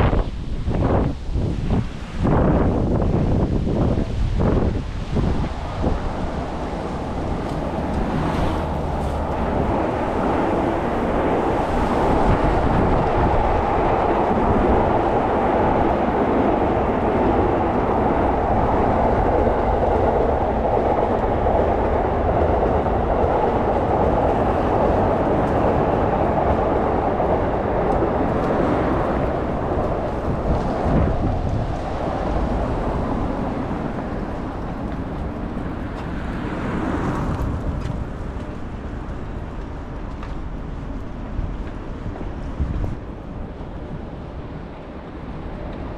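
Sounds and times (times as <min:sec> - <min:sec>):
steady rumbling: 0:00.0 - 0:36.5.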